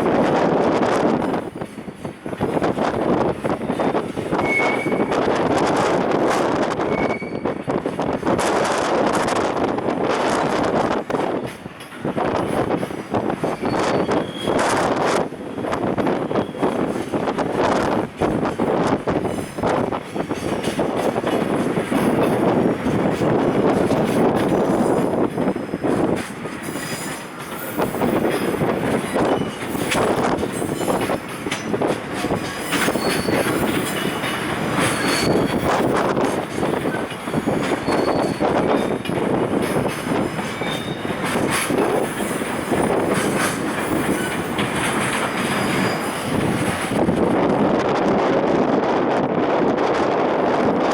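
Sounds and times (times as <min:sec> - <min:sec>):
train wheels clacking over rail joints: 0:00.0 - 0:47.7
high wheel squeals: 0:04.3 - 0:05.2, 0:06.8 - 0:07.6, 0:13.5 - 0:14.8, 0:26.7 - 0:31.0, 0:32.6 - 0:34.2, 0:34.8 - 0:36.0, 0:36.6 - 0:39.0, 0:40.5 - 0:41.2.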